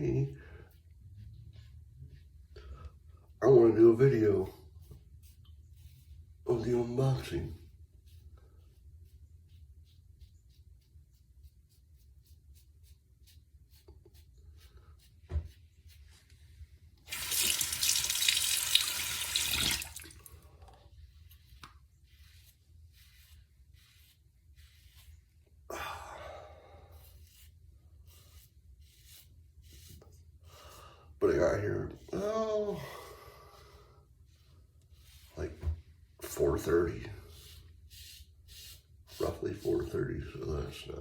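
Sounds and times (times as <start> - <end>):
tap water running into sink: 17.0 - 20.3.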